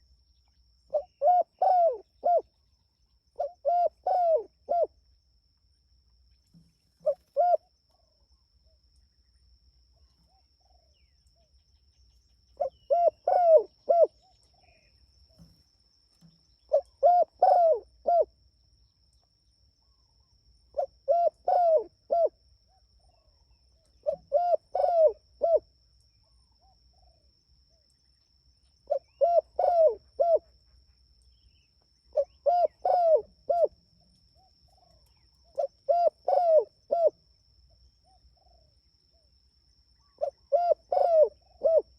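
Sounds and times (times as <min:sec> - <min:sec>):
dove cooing: 0:00.9 - 0:02.5, 0:03.4 - 0:04.9, 0:07.0 - 0:07.7, 0:12.6 - 0:14.3, 0:16.7 - 0:18.3, 0:20.8 - 0:22.4, 0:24.0 - 0:25.7, 0:28.9 - 0:30.5, 0:32.1 - 0:33.8, 0:34.7 - 0:37.2, 0:40.0 - 0:41.9.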